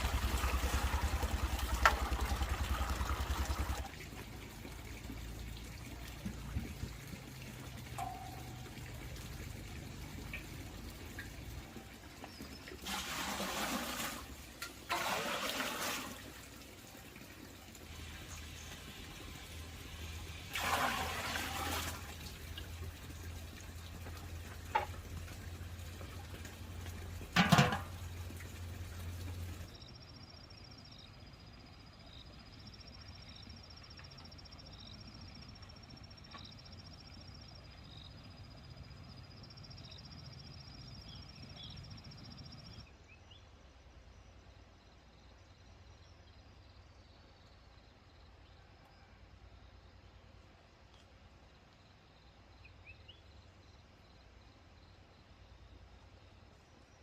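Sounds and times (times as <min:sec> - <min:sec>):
water splashing: 0:00.0 - 0:29.7.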